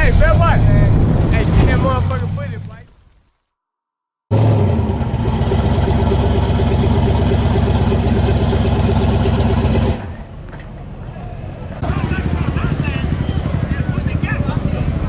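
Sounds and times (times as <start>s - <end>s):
car engine idling: 4.3s - 10.5s, 11.7s - 15.0s.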